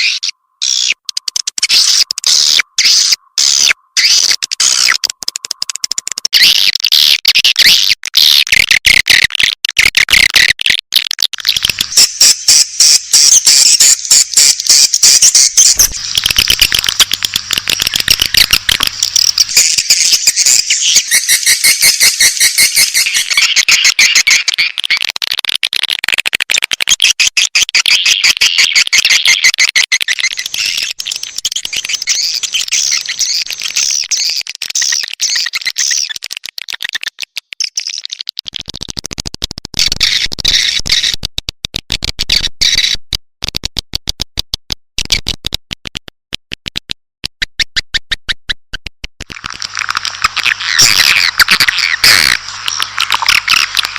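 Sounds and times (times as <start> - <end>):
swiftlets twittering and chirping: 0.0 - 8.5, 11.4 - 25.0, 26.9 - 38.4, 49.3 - 53.9.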